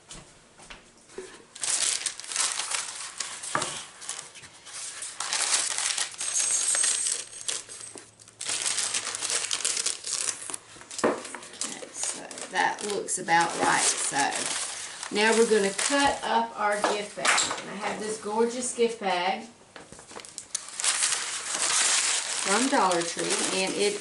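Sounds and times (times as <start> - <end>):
paper rustling and crinkling: 1.5 - 16.9, 19.9 - 24.0.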